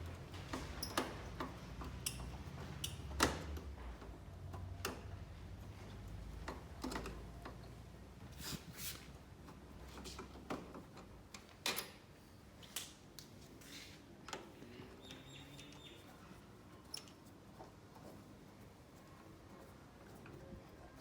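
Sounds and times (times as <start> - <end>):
tools clicking and knocking: 0.4 - 5.1.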